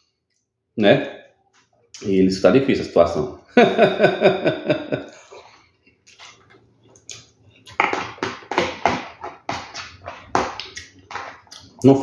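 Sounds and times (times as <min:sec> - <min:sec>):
wet chewing and lip-smacking: 0:05.3 - 0:07.8, 0:10.6 - 0:11.8.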